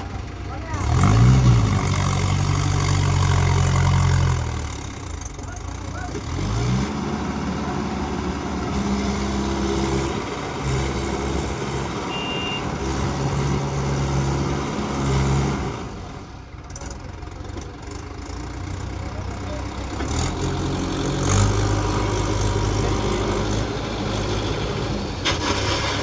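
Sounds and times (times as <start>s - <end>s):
tractor diesel engine revving: 0.0s - 26.0s
brief high beep: 12.1s - 12.7s.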